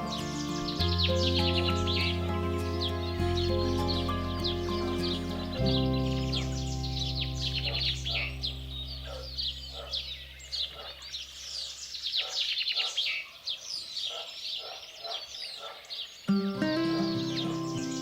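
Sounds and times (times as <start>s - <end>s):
soft background music: 0.0s - 10.0s, 16.3s - 18.0s
small birds chirping: 0.0s - 18.0s.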